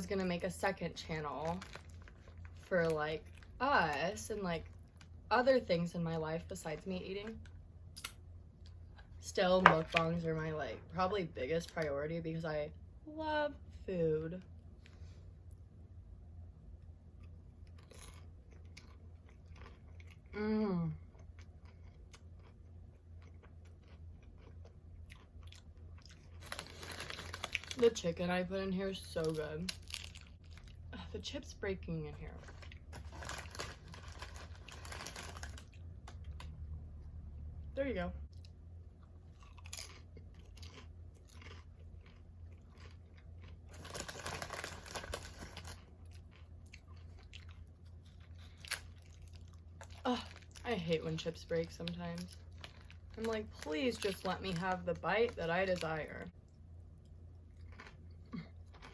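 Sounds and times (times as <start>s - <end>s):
chewing chips crunching: 0.2s - 5.2s, 17.1s - 20.4s, 21.0s - 28.1s, 29.0s - 30.9s, 32.3s - 36.7s, 38.3s - 58.9s.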